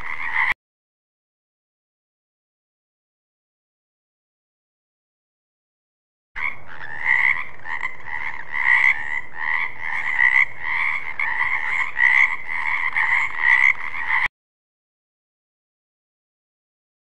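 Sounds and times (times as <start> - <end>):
frog croaking: 0.0 - 0.6, 6.4 - 14.3.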